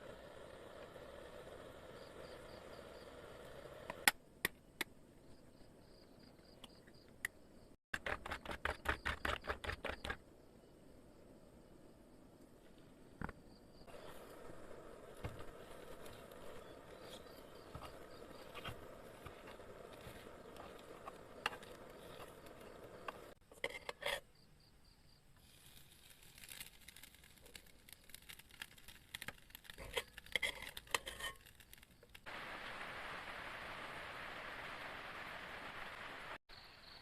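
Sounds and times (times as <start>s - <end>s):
steady hiss: 0.0s - 4.1s, 13.7s - 23.4s, 25.0s - 37.0s.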